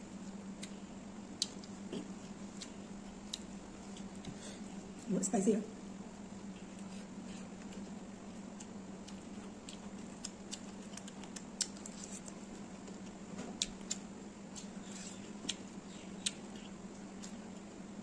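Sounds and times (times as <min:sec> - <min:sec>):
wet chewing clicks and smacks: 0:02.5 - 0:04.4, 0:07.6 - 0:17.7.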